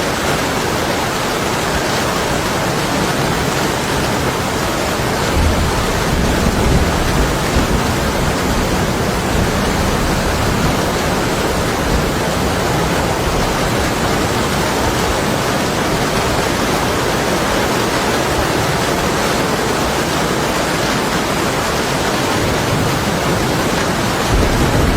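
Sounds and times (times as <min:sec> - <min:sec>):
heavy rain on window glass: 0:00.0 - 0:24.9
distant thunder rumble: 0:04.7 - 0:16.5, 0:22.4 - 0:24.9.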